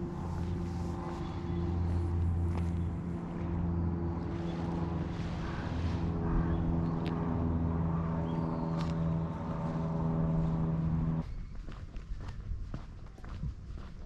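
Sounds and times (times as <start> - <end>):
engine idling: 0.0 - 11.2.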